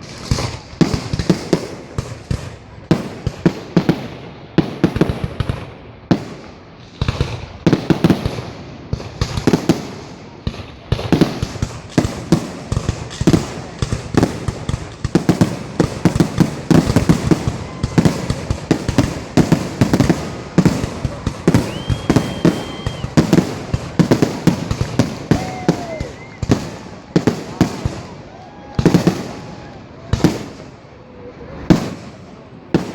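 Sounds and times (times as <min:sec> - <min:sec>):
fireworks bangs and crackling: 0:00.0 - 0:32.9
high whistle: 0:21.6 - 0:23.2.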